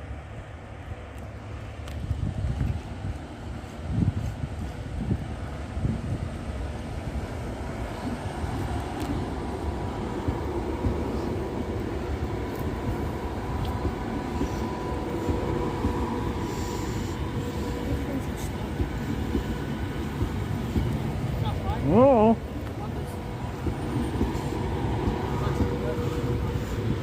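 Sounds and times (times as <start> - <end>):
train low rumble: 0.0 - 27.0.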